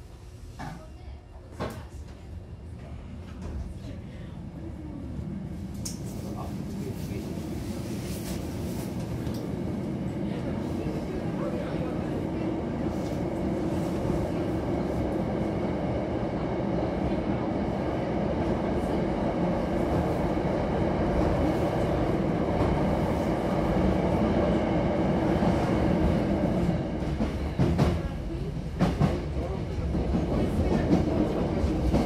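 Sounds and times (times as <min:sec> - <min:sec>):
train wheels rumbling: 0:04.6 - 0:32.0.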